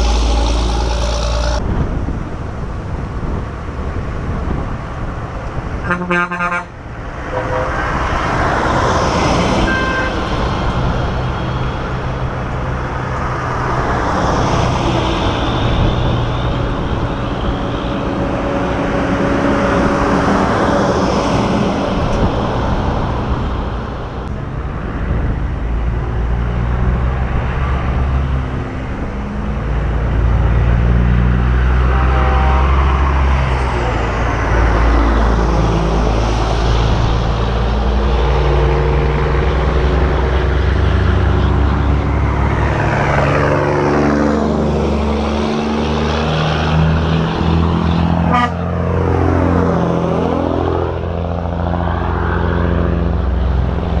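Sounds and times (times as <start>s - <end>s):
deep engine drone: 0.0s - 3.1s
trucks driving past: 0.0s - 54.0s.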